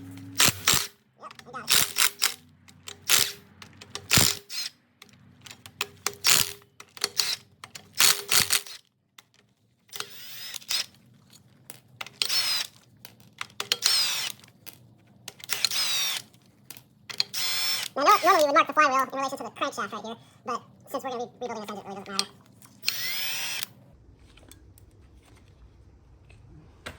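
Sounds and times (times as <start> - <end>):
tools clicking and knocking on metal: 0.2 - 10.1, 11.2 - 17.4
ratchet wrench clicking: 0.4 - 1.0, 1.7 - 8.8, 9.9 - 11.0, 12.0 - 12.8, 13.4 - 14.4, 15.3 - 16.3, 17.1 - 18.4, 22.8 - 23.7.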